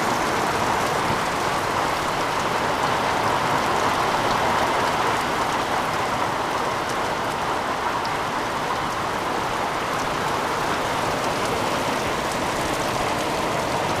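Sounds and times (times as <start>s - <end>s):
heavy rain hissing: 7.1s - 14.0s.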